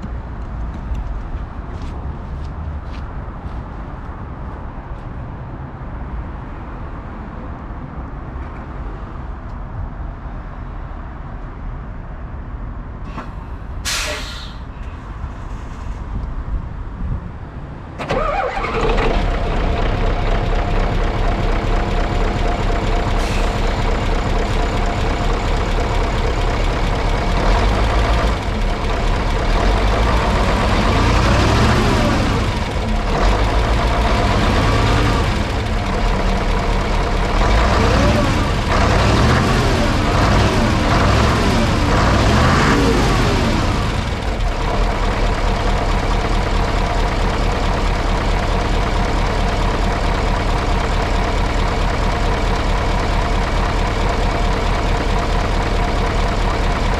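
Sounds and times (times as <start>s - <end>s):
short sharp hiss: 13.1s - 14.8s
diesel bus engine starting and idling: 13.1s - 17.0s, 17.8s - 56.9s.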